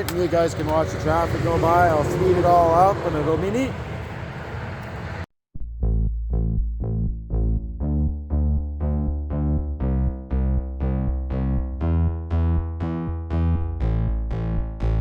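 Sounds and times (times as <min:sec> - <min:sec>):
steady bass: 0:05.6 - 0:15.0
synthesizer and electric piano chords: 0:05.9 - 0:15.0.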